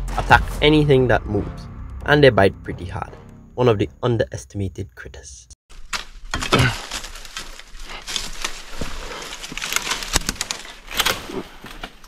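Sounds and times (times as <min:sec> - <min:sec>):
rustling and crackling: 0:05.8 - 0:12.0.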